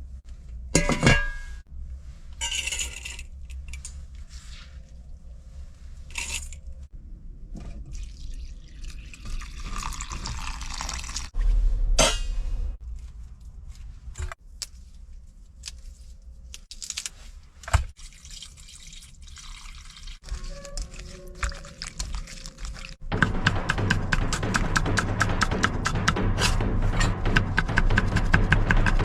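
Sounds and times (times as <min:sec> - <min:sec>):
liquid pouring and dripping: 0:07.8 - 0:11.4, 0:17.9 - 0:23.0
loud low thump: 0:23.0 - 0:29.0
sharp knock: 0:23.1 - 0:29.0.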